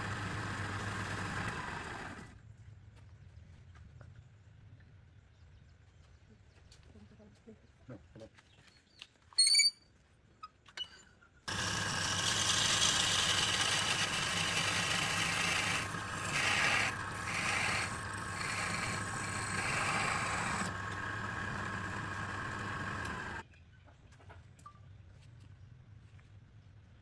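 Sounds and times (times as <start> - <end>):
workshop machine humming: 0.0 - 2.3, 11.5 - 23.4.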